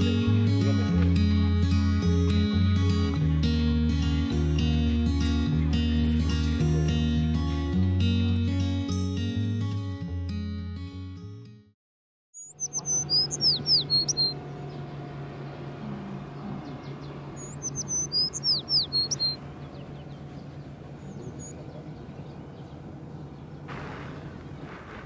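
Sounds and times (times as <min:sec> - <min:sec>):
songbird singing: 0:12.4 - 0:24.9
steady low hum: 0:12.7 - 0:24.8.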